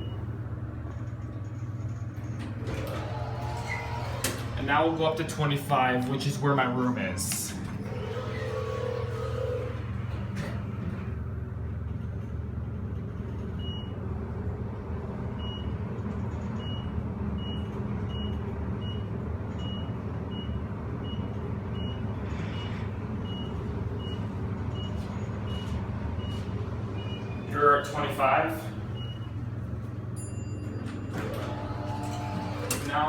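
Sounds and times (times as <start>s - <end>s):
elevator rumble and hum: 0.0s - 33.0s.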